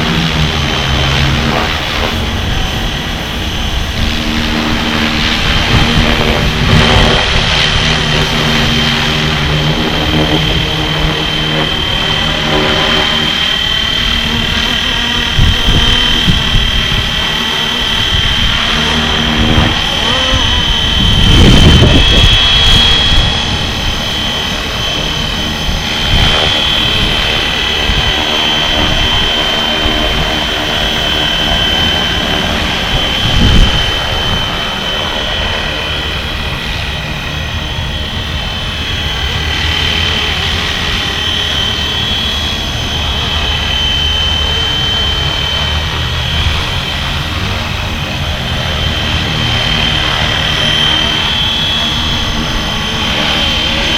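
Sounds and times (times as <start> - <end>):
helicopter rotor high whine: 0.0 - 53.9
wind gusts on microphone: 0.0 - 53.9.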